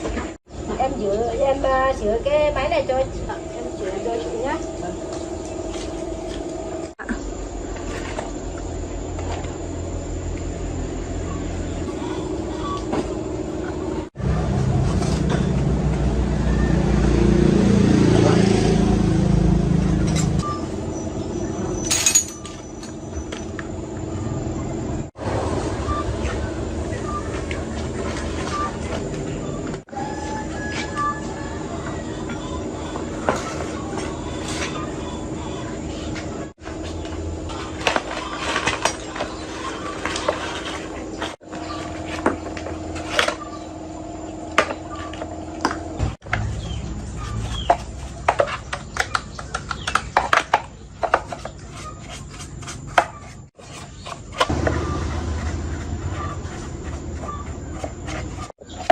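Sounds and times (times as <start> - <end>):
engine hum: 0.0 - 58.9
light metallic clinks: 21.8 - 23.0
low hum: 54.4 - 58.5.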